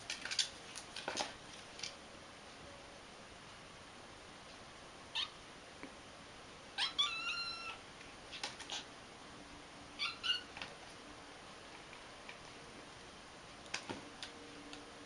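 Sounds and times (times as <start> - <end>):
cat meowing: 6.8 - 7.8, 10.0 - 10.5.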